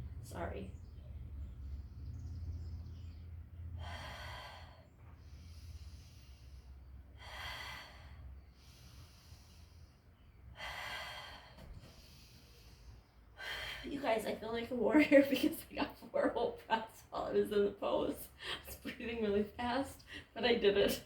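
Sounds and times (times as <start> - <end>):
woman breathing deeply: 3.7 - 13.9.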